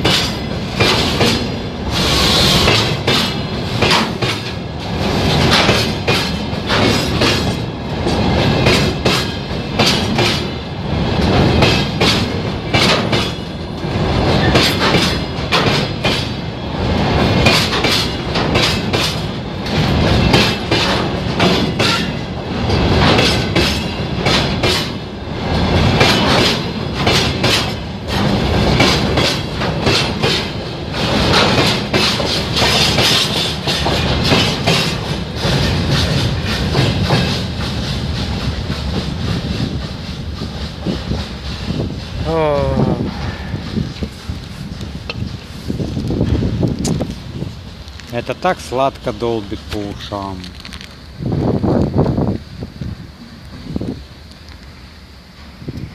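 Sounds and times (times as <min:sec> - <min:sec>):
freight train wheels clattering: 0:00.0 - 0:52.3.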